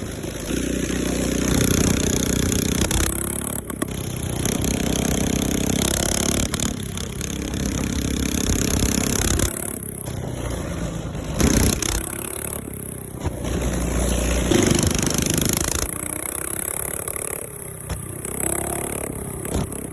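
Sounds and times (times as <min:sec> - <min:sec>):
mini bike engine revving: 0:00.0 - 0:19.9.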